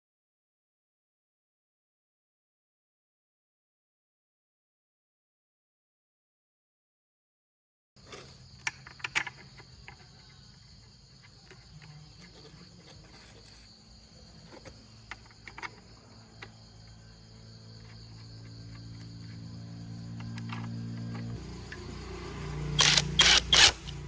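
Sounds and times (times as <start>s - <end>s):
insects chirring: 8.0s - 24.0s.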